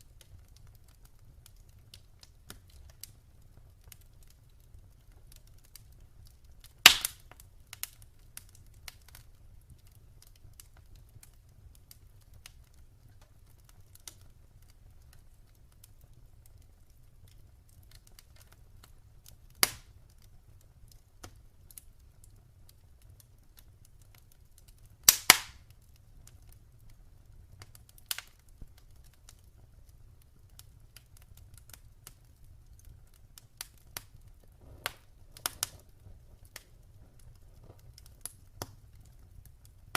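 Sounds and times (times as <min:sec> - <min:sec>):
wood fire crackling: 0:00.0 - 0:39.9
loud sharp pops: 0:06.8 - 0:07.2, 0:19.6 - 0:19.9, 0:25.1 - 0:25.6
faint low rumble: 0:34.0 - 0:39.9.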